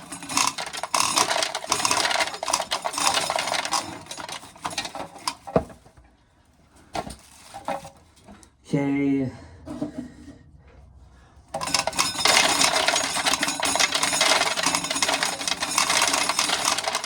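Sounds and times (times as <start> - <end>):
corn kernels clattering: 0.0 - 5.6, 11.6 - 17.0.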